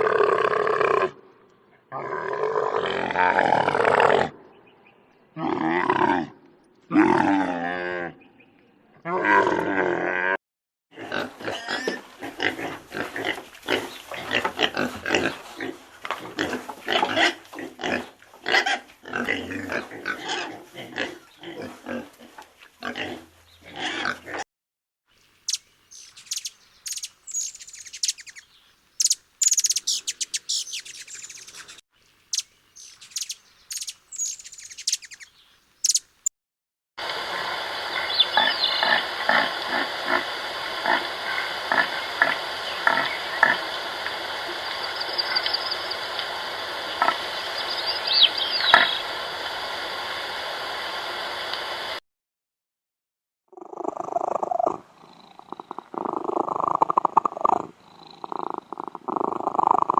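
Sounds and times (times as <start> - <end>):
sharp high chirps: 25.5 - 28.4, 29.0 - 31.6, 32.4 - 36.1
rapid gruff pulsed animal calls: 29.0 - 35.2, 53.5 - 59.9.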